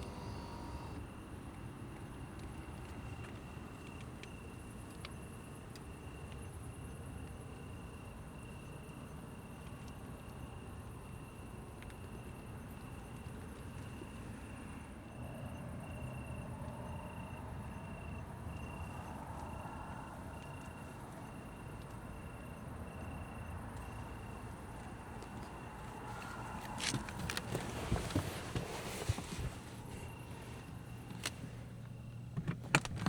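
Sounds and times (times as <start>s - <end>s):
low steady rumble: 0.0s - 3.6s, 12.7s - 33.0s
cricket chirping: 0.0s - 33.0s.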